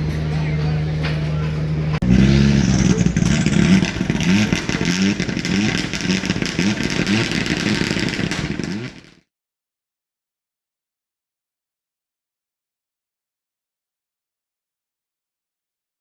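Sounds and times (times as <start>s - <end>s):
rally car engine revving: 2.0s - 9.1s.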